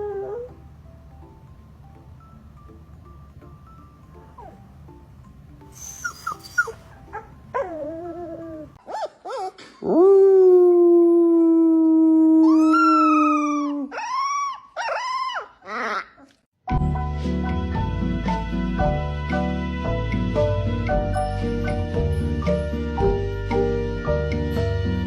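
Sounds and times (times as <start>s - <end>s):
faint background music: 0.0s - 13.9s
dogs howling: 5.8s - 8.8s
dog yelps: 5.8s - 10.0s, 12.4s - 16.3s.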